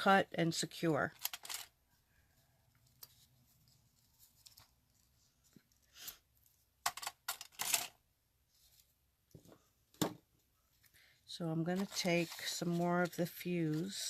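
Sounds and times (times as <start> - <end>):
twine and card rustling: 1.0 - 1.7, 2.4 - 7.9, 10.7 - 14.0.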